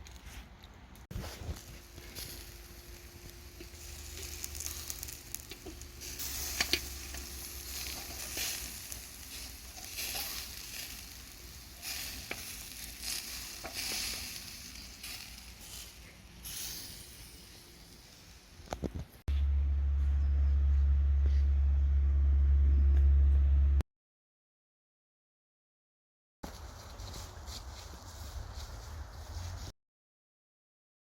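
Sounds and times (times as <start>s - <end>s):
meat sizzling over fire: 1.2s - 18.6s.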